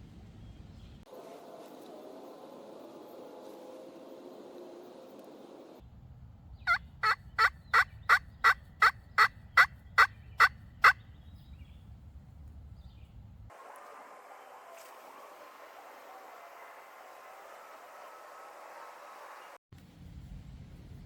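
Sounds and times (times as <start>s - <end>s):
turkey yelps: 6.7s - 11.0s.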